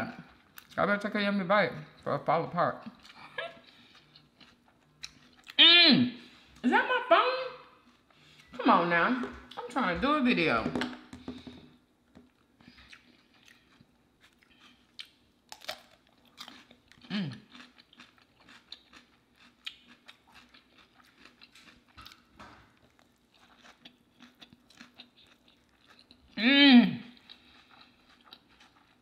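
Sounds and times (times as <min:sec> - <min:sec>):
taco crunching and chewing: 0:02.8 - 0:05.6, 0:07.8 - 0:08.5, 0:12.0 - 0:26.4, 0:27.1 - 0:29.0.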